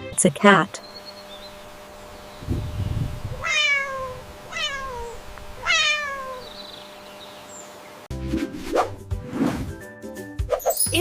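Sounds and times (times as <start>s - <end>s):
cat meowing: 3.3s - 6.7s.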